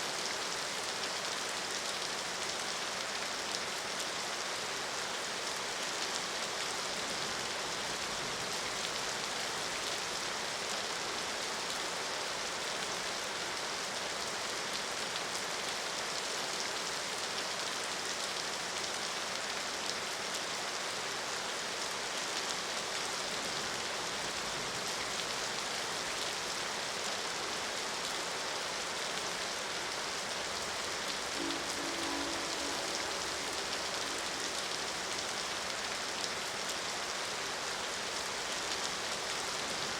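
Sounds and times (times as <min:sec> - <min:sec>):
steady rain falling: 0:00.0 - 0:39.9
distant train horn: 0:31.2 - 0:35.9.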